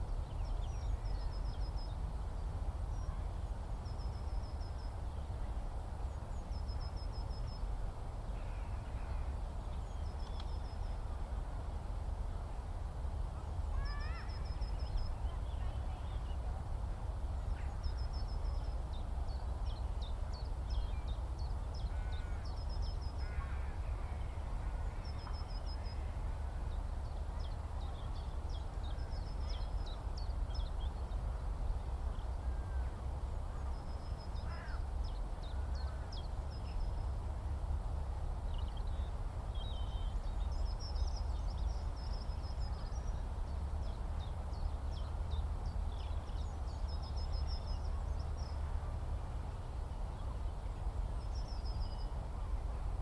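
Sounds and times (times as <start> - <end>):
lower bird calls: 17.4 - 31.2, 32.1 - 37.0.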